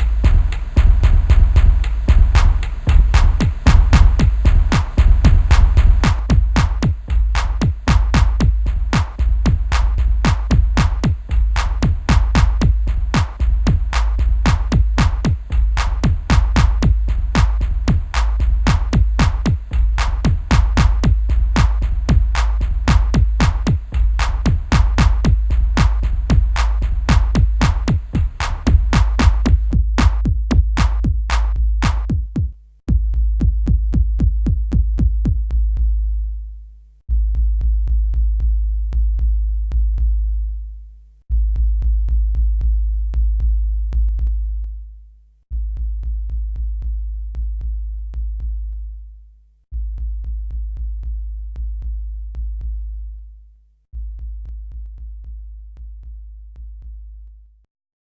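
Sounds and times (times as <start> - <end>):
fast ticking hi-hats: 0.0 - 35.5
deep bass hits: 0.0 - 36.3.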